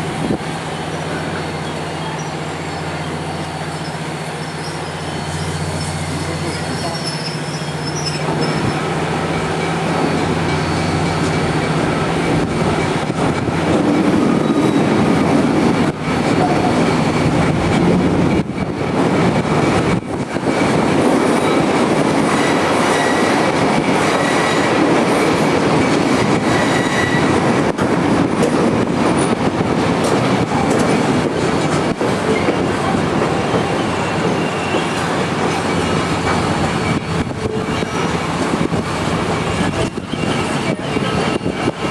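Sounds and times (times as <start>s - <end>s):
train wheels rumbling on rails: 0.0s - 41.9s
faint wheel squeal: 1.6s - 8.8s, 33.8s - 35.1s.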